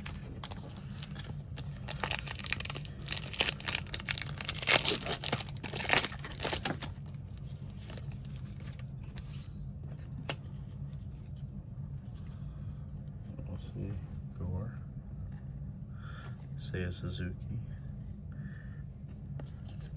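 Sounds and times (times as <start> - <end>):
foil wrapper tearing and crinkling: 0.0 - 8.8
low steady hum: 0.0 - 19.9.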